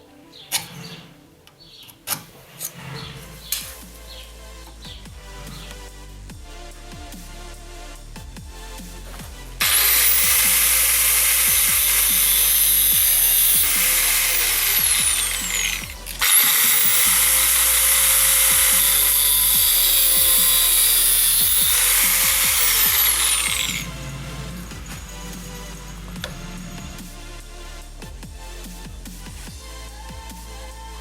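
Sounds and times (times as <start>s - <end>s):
power tool whining on metal: 9.6s - 27.0s.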